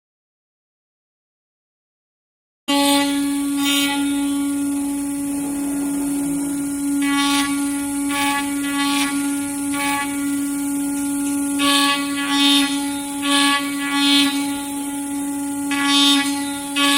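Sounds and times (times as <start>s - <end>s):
router bit cutting hiss: 2.7s - 16.9s
router spindle tone: 2.7s - 16.9s.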